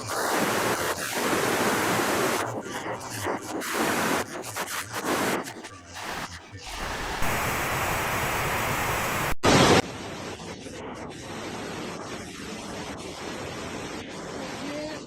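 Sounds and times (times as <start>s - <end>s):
broken voice-like sounds: 0.0s - 9.3s
steady rushing noise: 0.0s - 15.0s.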